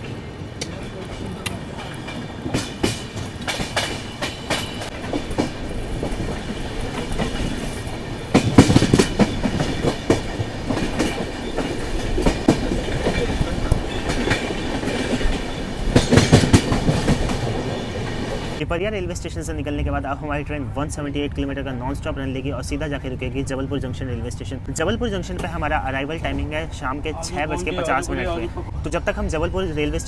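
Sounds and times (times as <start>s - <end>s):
train wheels clattering over joints: 0.0s - 18.6s.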